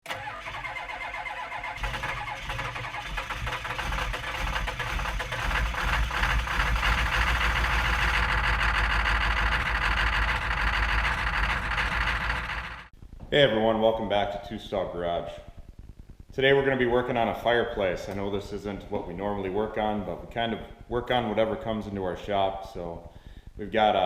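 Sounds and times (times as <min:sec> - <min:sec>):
machine running steadily: 0:03.4 - 0:12.9.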